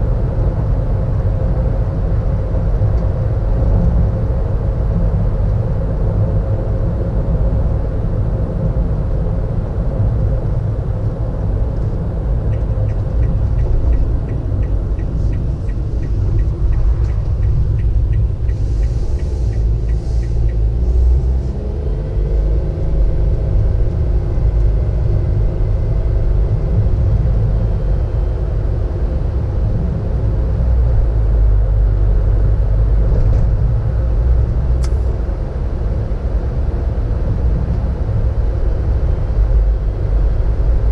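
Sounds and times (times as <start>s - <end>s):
car engine and tyre rumble: 0.0s - 40.9s
rapid even ticking: 12.9s - 20.6s.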